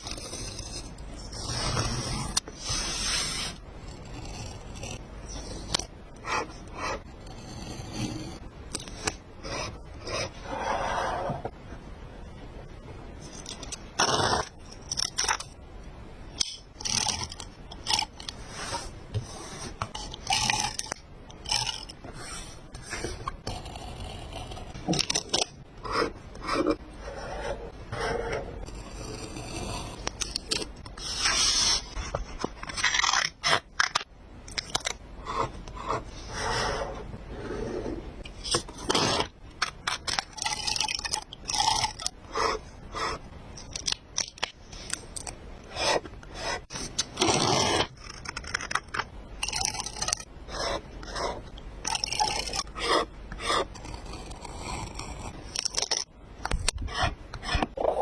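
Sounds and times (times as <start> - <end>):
paper and stickers scraping: 24.9 - 34.0.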